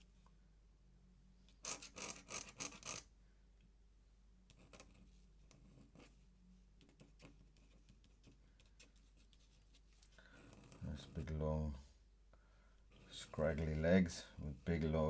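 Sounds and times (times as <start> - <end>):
pen scratching on paper: 1.6 - 3.0, 10.4 - 11.3.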